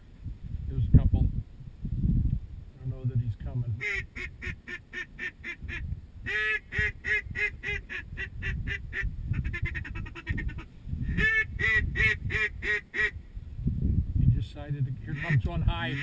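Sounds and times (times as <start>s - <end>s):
duck call quacks: 3.8s - 13.2s, 15.1s - 16.0s.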